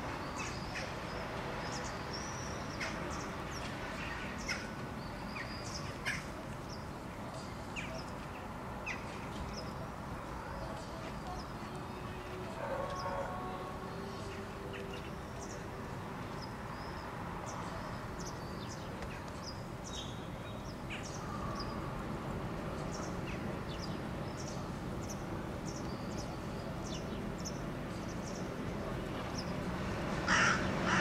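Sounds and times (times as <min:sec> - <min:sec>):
small birds chirping: 0:22.7 - 0:29.7.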